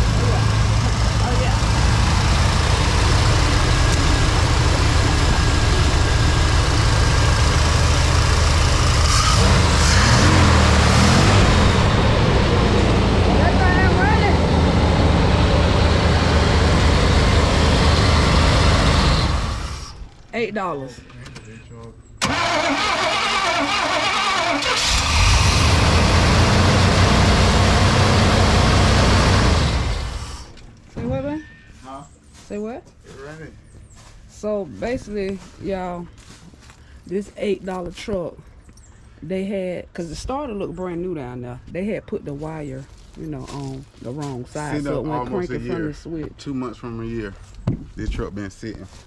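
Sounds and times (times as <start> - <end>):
pickup truck engine idling: 0.0 - 20.0.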